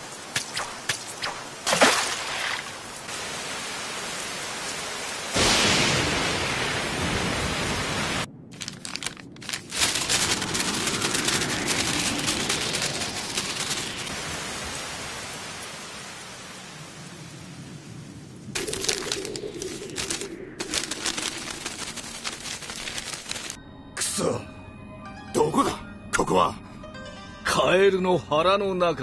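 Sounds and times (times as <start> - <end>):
heavy rain: 1.5 - 23.6
paper sheets fluttering: 8.5 - 14.1, 18.6 - 23.6.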